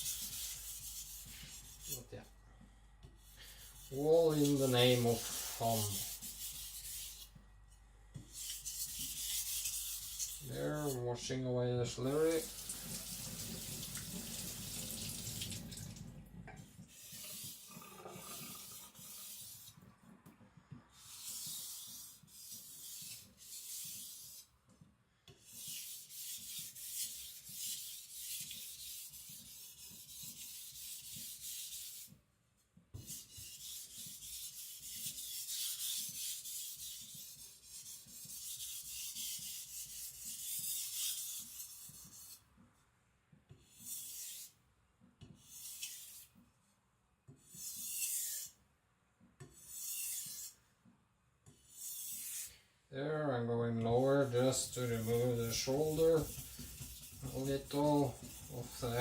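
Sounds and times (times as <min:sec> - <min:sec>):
running water: 0:12.1 - 0:16.4
blade scraping on whetstone: 0:47.5 - 0:48.6, 0:49.6 - 0:50.6, 0:51.7 - 0:52.6, 0:54.3 - 0:59.0.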